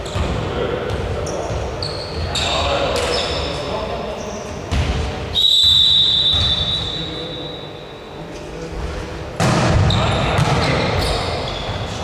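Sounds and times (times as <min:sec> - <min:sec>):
basketball court noise: 0:00.0 - 0:03.8, 0:04.4 - 0:07.5, 0:09.3 - 0:12.0
referee's whistle blast: 0:05.4 - 0:07.9.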